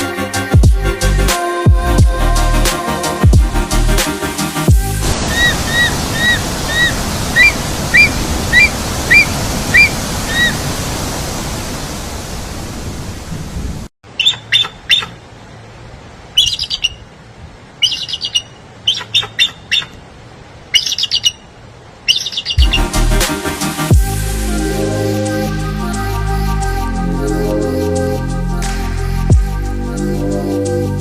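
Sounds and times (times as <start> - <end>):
steady rushing noise: 3.0 - 13.9
bird chirps and trills: 5.2 - 10.6, 14.1 - 15.2, 16.4 - 17.1, 17.8 - 20.0, 20.7 - 23.2
repeated short bird call: 14.1 - 15.2, 16.4 - 17.1, 17.8 - 20.0, 20.7 - 22.9.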